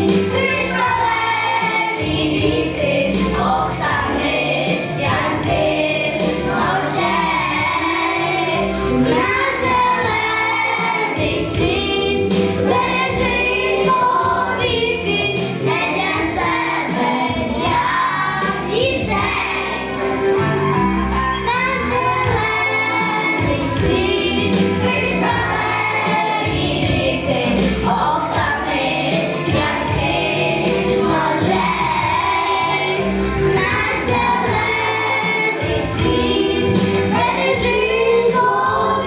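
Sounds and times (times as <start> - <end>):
children singing together: 0.0 - 20.4, 21.1 - 39.0
instrumental backing track: 0.0 - 39.0.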